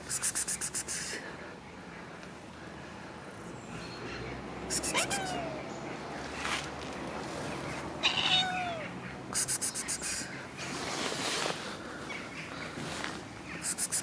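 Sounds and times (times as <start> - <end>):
cat meowing: 4.7 - 5.6, 8.0 - 9.0.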